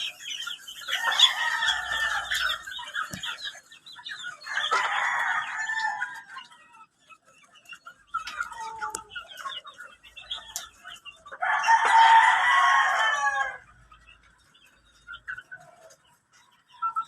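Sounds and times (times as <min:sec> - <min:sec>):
chicken clucking: 0:00.0 - 0:17.0
rooster crowing: 0:01.0 - 0:02.5.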